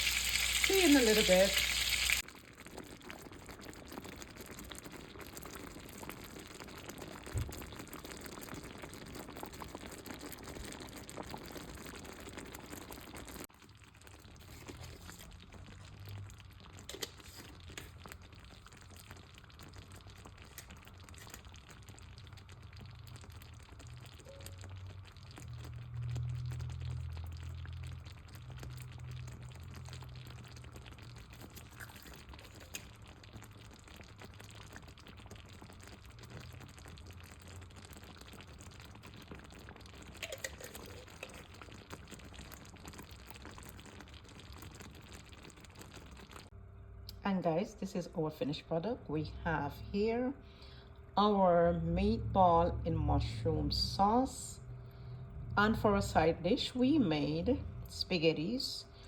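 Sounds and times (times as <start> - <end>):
meatballs sizzling in oil: 0.0 - 47.1
low hum: 46.6 - 59.0.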